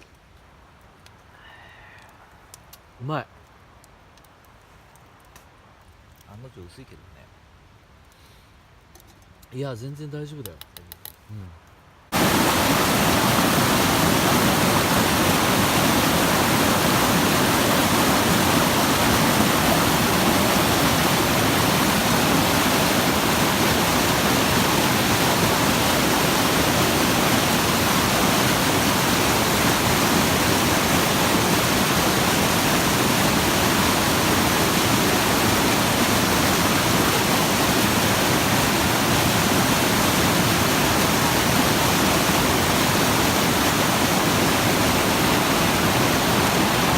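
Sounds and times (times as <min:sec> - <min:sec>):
mountain stream rushing: 0:12.1 - 0:46.9.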